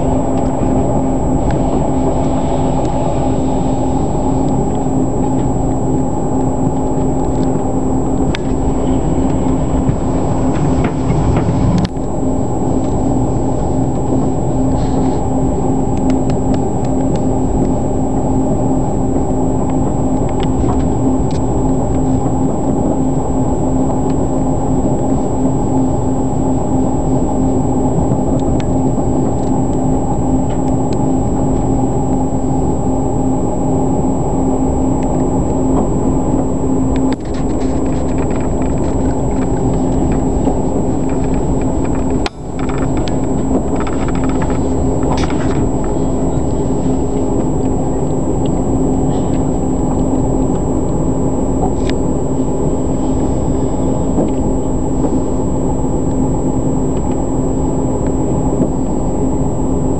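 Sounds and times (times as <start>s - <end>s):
constant hum: 0.0s - 59.9s
train wheels rumbling on rail: 0.0s - 59.9s.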